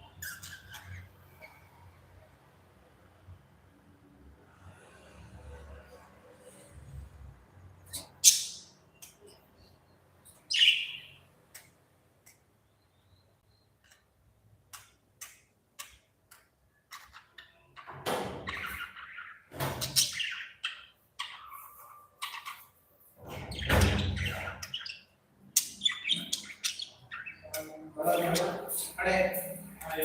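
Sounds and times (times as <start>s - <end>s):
budgerigars chirping and squawking: 0.0s - 1.6s, 7.9s - 8.8s, 10.3s - 11.2s, 16.9s - 29.0s.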